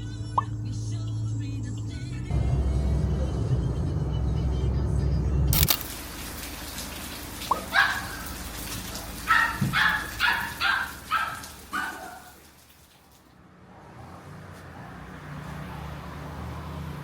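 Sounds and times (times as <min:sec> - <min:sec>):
dog barking: 0:07.4 - 0:12.5
dog whining: 0:09.3 - 0:12.1.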